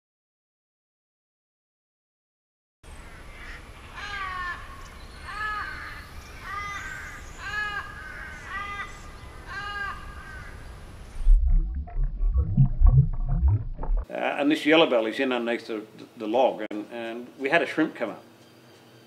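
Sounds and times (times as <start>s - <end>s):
bird calling: 3.0s - 11.3s
steady low rumble: 11.1s - 14.0s.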